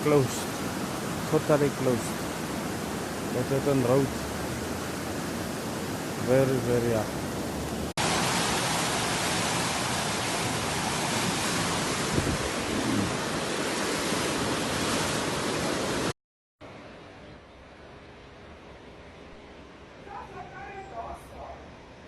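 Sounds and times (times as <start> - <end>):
floodwater rushing: 0.0 - 16.1.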